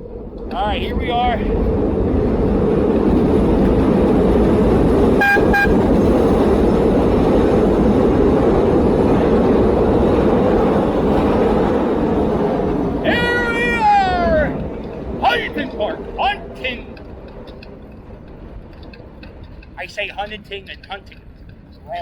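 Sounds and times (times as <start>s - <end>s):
traffic rumble: 0.0s - 22.0s
horn toots: 5.2s - 6.0s.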